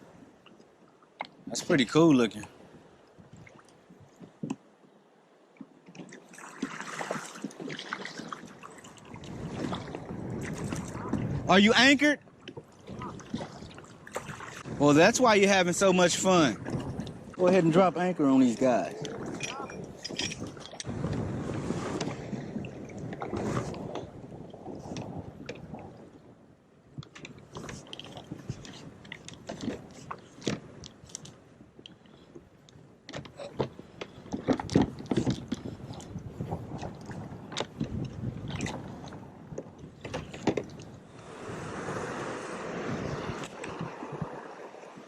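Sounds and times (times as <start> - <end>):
water splashing against a kayak: 5.5 - 45.0
wind on microphone: 7.1 - 11.8, 12.8 - 17.8, 18.6 - 31.8, 33.4 - 45.0.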